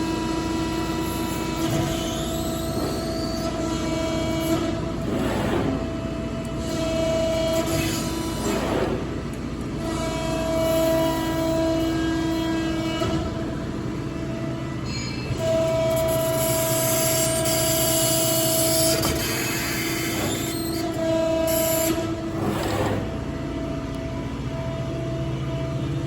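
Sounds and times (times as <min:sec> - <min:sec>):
hydraulic pump hum: 0:00.0 - 0:26.0
hydraulic whining tone: 0:00.0 - 0:26.0.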